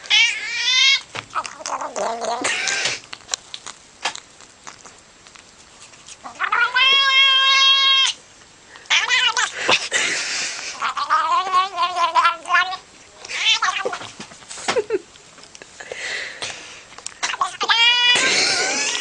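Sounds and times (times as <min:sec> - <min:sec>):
cat meowing: 0:00.1 - 0:03.0, 0:06.2 - 0:08.2, 0:08.9 - 0:09.8, 0:10.8 - 0:14.1, 0:17.2 - 0:18.4
raspy cat calls: 0:06.2 - 0:08.2, 0:08.9 - 0:09.6, 0:17.2 - 0:18.2.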